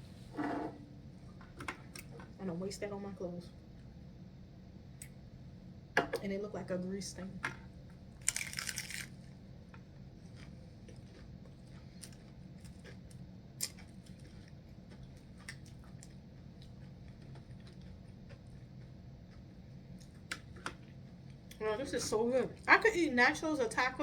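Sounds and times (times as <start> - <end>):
low steady hum: 0.0 - 24.0
crunchy bite of tortilla chips: 8.2 - 9.4, 10.2 - 19.4
quiet chewing: 9.8 - 21.6.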